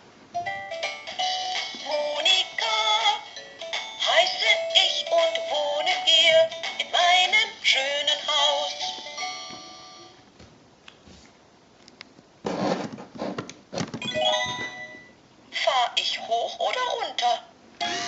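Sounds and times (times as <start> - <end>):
electronic toy song with sung voice: 1.1 - 9.2
electronic jingle: 14.0 - 15.2.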